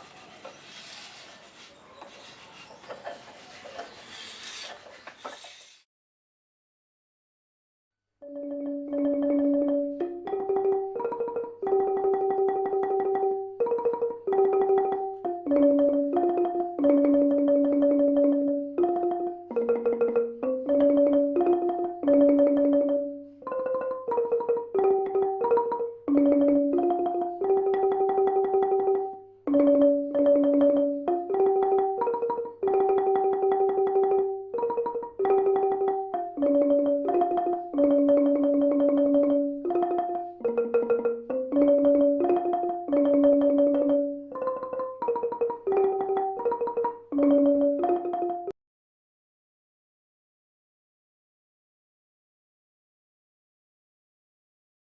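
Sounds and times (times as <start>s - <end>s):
wooden xylophone melody: 8.2s - 48.6s.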